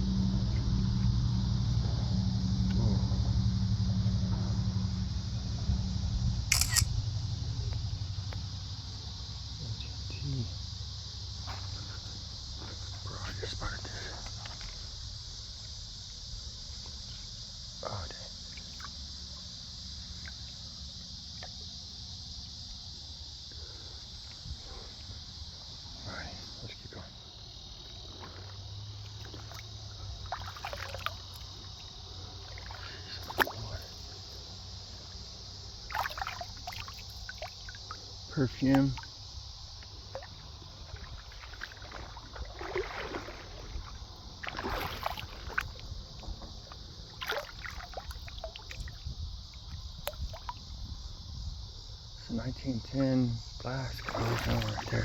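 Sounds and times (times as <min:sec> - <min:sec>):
high-pitched insect chorus: 0:00.0 - 0:55.0
feet splashing through water: 0:27.9 - 0:34.1, 0:35.8 - 0:38.1, 0:39.0 - 0:50.6, 0:54.0 - 0:55.0.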